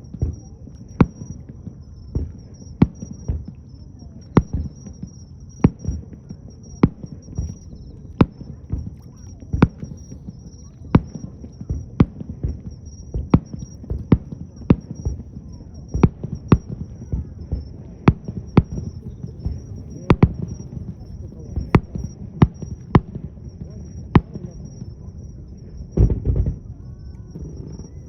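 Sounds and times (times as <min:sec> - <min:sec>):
fireworks bursting with bangs: 0:00.0 - 0:28.0.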